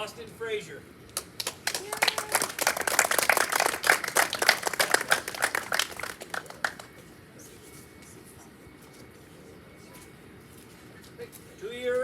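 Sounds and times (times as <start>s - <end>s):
people clapping: 1.2s - 7.0s.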